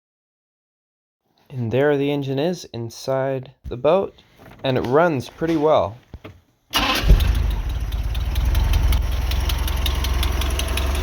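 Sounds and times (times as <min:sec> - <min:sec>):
rapid regular engine tick: 0:06.8 - 0:11.0
boat engine running: 0:07.0 - 0:11.0.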